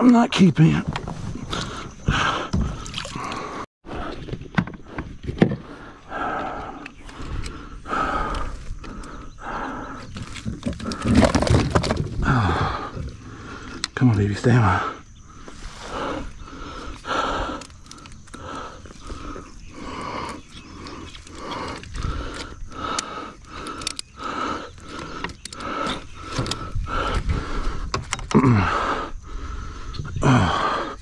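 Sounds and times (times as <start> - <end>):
person groaning: 28.3 - 29.0, 30.2 - 30.9.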